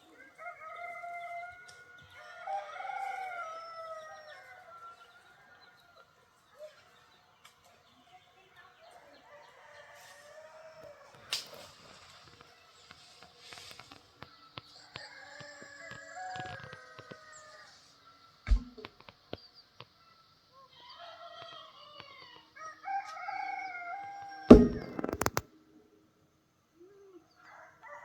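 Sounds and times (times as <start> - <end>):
roosters crowing: 0.1 - 5.9, 9.2 - 11.7, 14.8 - 18.0, 20.7 - 25.4
sharp thud: 24.5 - 25.4.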